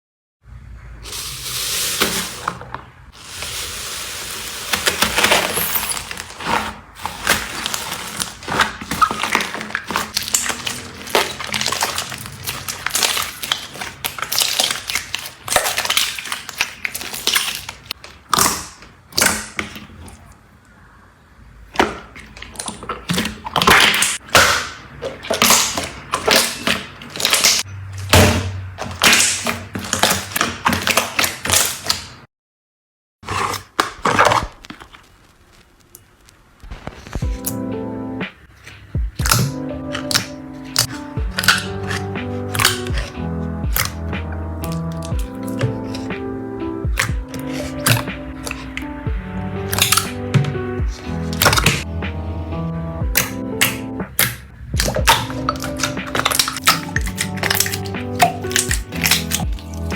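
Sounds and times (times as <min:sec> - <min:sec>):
slime clicking and popping: 0:08.5 - 0:19.8, 0:22.4 - 0:27.7, 0:39.2 - 0:46.2, 0:46.9 - 0:48.9, 0:49.6 - 0:50.6, 0:53.1 - 0:59.9.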